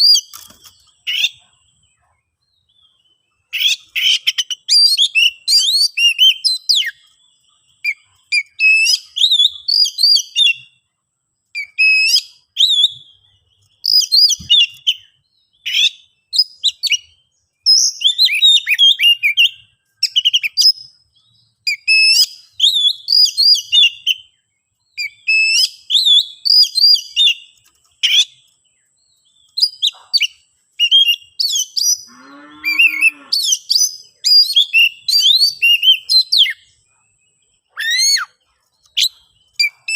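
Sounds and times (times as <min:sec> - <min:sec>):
bird whistles and chirps: 0:00.0 - 0:10.8, 0:11.6 - 0:28.5, 0:29.2 - 0:37.0, 0:37.6 - 0:39.9
low bird call: 0:29.5 - 0:39.9.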